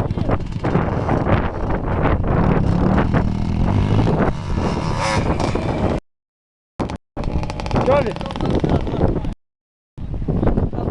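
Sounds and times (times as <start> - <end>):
dirt bike engine revving: 0.0 - 6.0, 6.8 - 9.0
wind on microphone: 0.0 - 6.0, 6.8 - 9.4, 10.0 - 10.9.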